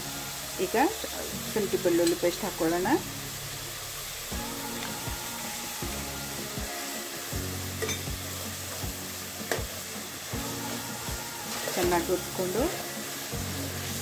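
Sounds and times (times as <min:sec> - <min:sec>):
vegetables sizzling in oil: 0:00.0 - 0:14.0
metal spatula scraping a pot: 0:07.8 - 0:08.8.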